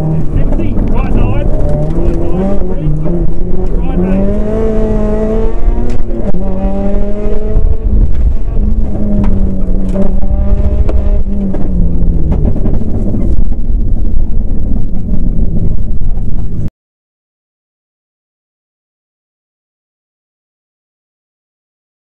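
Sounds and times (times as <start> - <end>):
car engine running hard: 0.0 - 16.7
sharp clicks and knocks: 0.2 - 3.8, 7.2 - 16.7.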